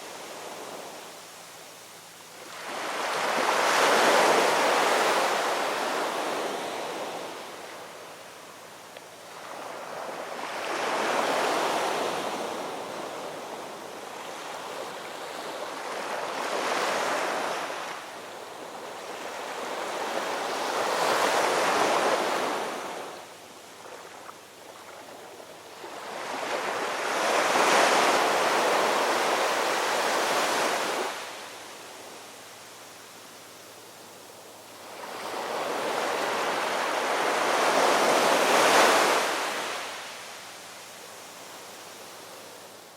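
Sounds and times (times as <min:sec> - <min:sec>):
ocean surf waves: 0:02.5 - 0:07.8, 0:09.3 - 0:23.2, 0:25.8 - 0:32.2, 0:34.8 - 0:40.6.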